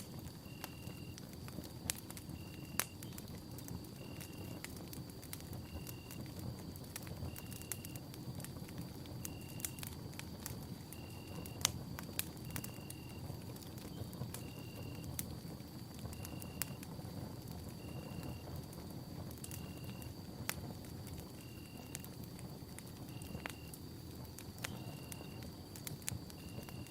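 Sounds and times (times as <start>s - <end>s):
campfire crackling and popping: 0.0s - 26.9s
faint steady high tone: 0.4s - 1.2s.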